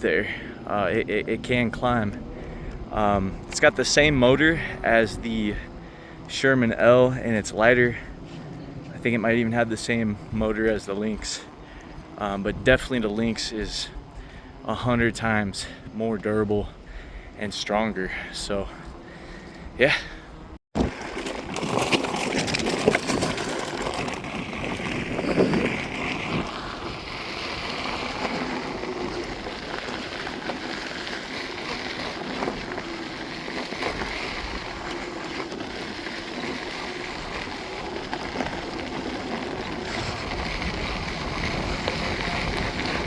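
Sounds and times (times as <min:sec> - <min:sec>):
electric unicycle rolling noise: 0:00.0 - 0:43.0
wind rush on microphone: 0:39.8 - 0:43.0.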